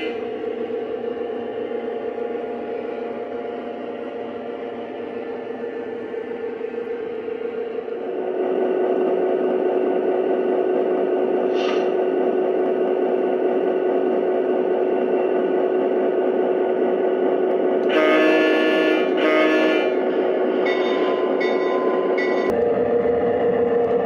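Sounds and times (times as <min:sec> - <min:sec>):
electronic train horn: 0:00.0 - 0:00.6, 0:17.8 - 0:21.5
diesel engine sound: 0:00.0 - 0:24.0.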